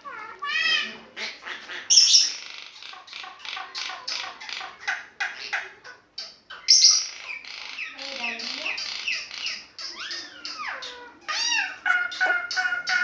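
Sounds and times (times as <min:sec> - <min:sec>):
starling chattering and whistling: 0:06.5 - 0:13.0.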